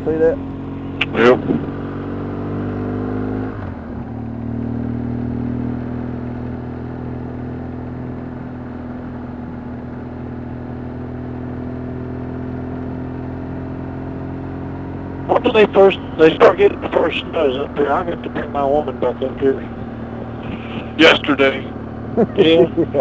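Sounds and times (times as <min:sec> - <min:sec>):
road noise: 0:00.0 - 0:23.0
vehicle engine running: 0:00.0 - 0:23.0.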